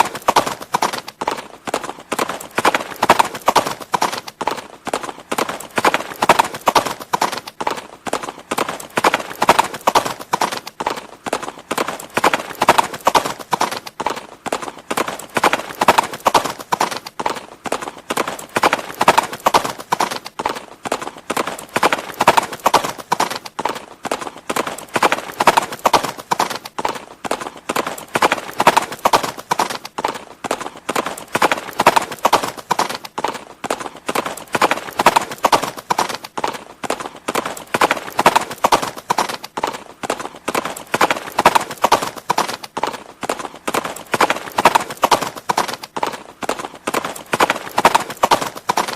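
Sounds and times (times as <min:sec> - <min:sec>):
horse hooves clip-clopping: 0:00.0 - 0:48.9.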